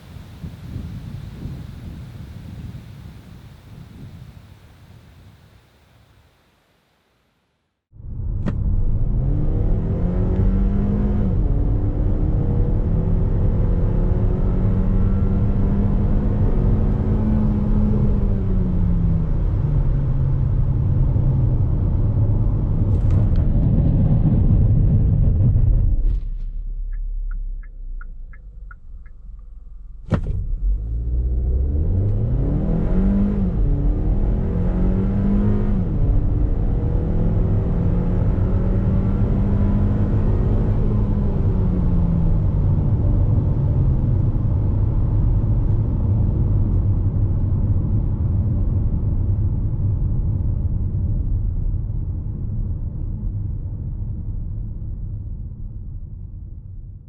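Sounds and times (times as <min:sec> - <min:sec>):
car engine accelerating hard: 0:08.4 - 0:25.6, 0:29.9 - 0:49.7.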